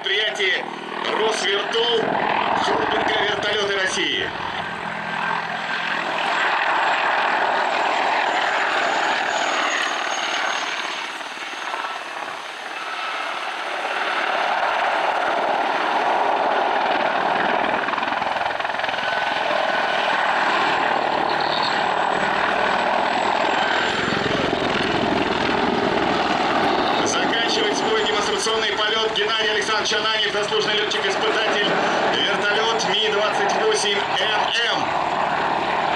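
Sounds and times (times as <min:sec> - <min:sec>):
helicopter turbine and rotor noise: 0:00.0 - 0:35.9
faint high whine: 0:21.2 - 0:22.2.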